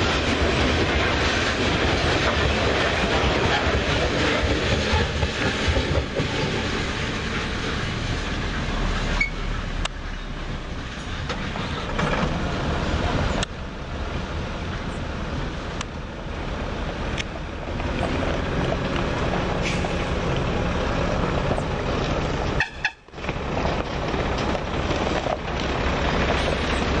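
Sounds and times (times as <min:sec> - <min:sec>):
train wagons rumbling on rails: 0:00.0 - 0:27.0
wheels clicking over rail joints: 0:09.0 - 0:13.7, 0:16.9 - 0:27.0.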